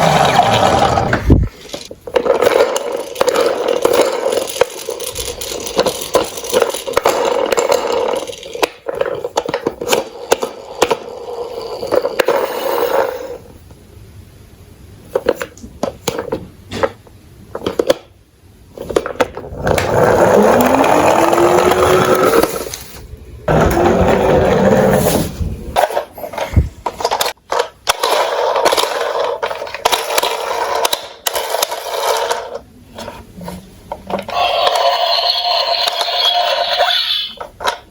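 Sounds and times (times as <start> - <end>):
plastic toy trucks rolling and scraping: 0.0 - 13.6, 15.1 - 18.1, 18.7 - 37.9
rising whine: 19.8 - 25.8.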